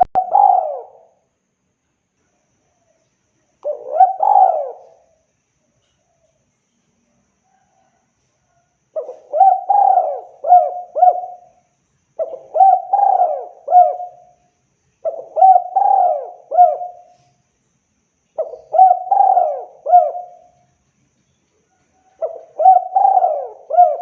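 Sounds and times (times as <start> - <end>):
dove cooing: 0.0 - 1.2, 3.6 - 5.2, 9.0 - 11.6, 12.2 - 14.4, 15.0 - 17.3, 18.4 - 20.6, 22.0 - 24.0.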